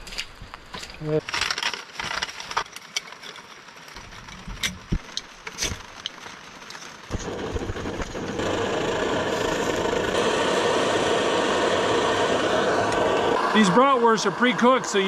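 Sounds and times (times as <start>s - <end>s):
camp cooking gear clicks and knocks: 0.0s - 7.1s
steady hiss of stove: 7.1s - 15.0s.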